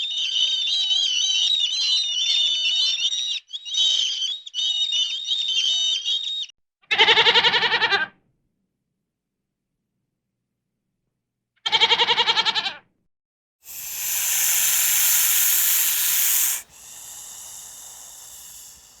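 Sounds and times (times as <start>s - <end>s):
loud hiss: 13.7s - 19.0s.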